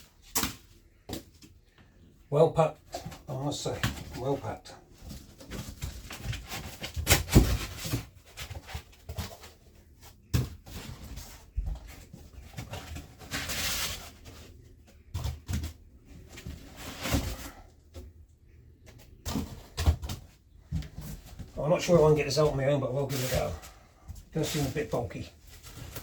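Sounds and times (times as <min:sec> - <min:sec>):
packing rustling and scraping: 0:03.9 - 0:17.7, 0:19.2 - 0:26.0.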